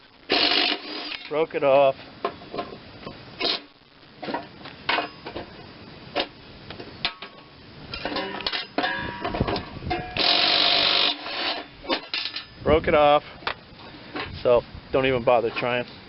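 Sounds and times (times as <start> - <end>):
metal tools clinking on metal: 7.0 - 12.6.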